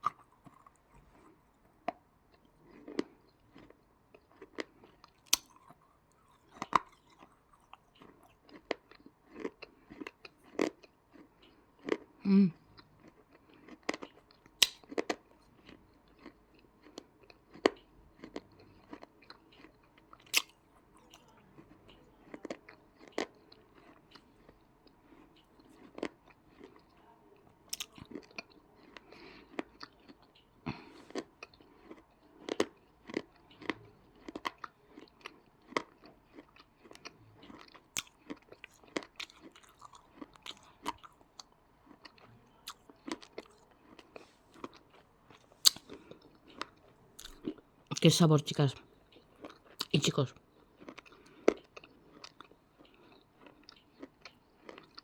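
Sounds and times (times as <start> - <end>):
sharp crunches of biting: 0.0 - 2.0, 4.3 - 11.2, 13.9 - 15.1, 20.2 - 21.7, 42.0 - 47.6
soft chewing: 0.0 - 55.0.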